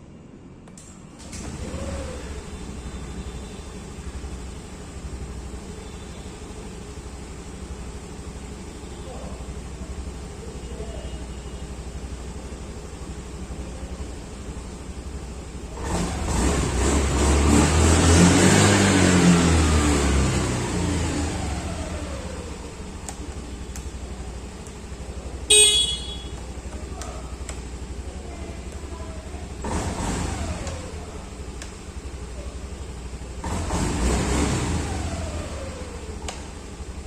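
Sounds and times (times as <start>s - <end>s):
short horn toot: 25.5s - 26.4s.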